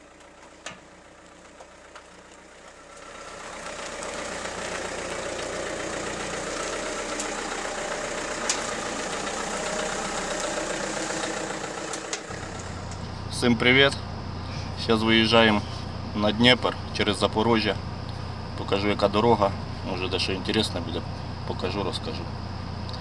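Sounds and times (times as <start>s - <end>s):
car engine idling: 0.0s - 23.0s
faint clicks: 3.9s - 13.2s.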